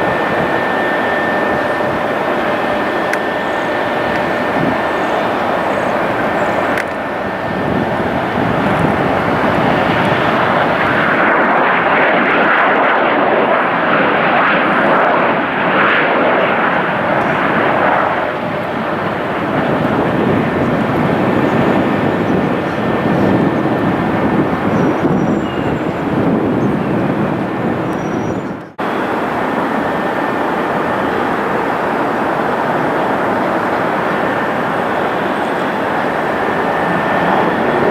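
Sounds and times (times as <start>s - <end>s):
jet airliner engines passing: 0.0s - 37.9s.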